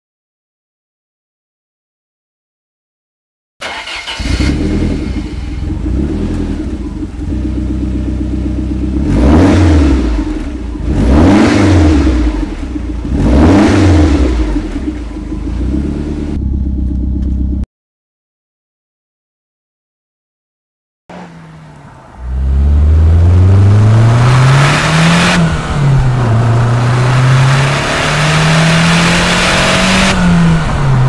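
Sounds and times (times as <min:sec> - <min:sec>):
car engine idling and revving: 0:03.6 - 0:17.7, 0:21.1 - 0:31.0.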